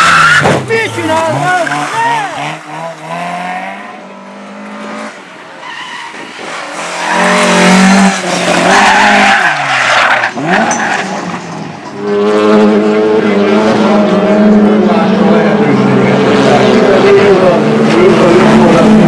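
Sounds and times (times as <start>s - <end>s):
tyres squealing and skidding: 0.0s - 4.0s, 5.5s - 12.1s
race car engine revving: 0.0s - 5.4s, 6.4s - 19.0s.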